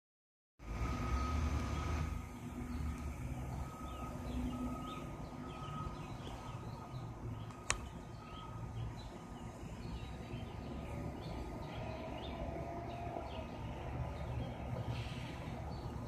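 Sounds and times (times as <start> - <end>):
distant traffic rumble: 0.6 - 16.0
birds chirping: 1.2 - 16.0
sharp click: 7.4 - 7.9.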